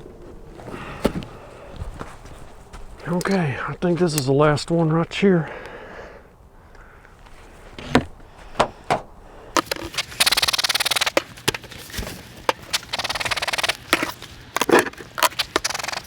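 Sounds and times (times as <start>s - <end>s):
hive tool rasping scrapes: 9.6s - 16.0s.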